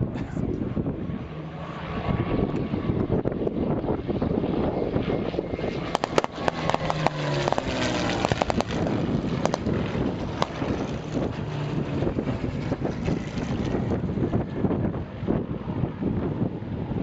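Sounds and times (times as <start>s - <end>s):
distant propeller aircraft drone: 0.0s - 17.0s
wind buffeting microphone: 0.0s - 17.0s
sharp clicks: 5.9s - 8.8s.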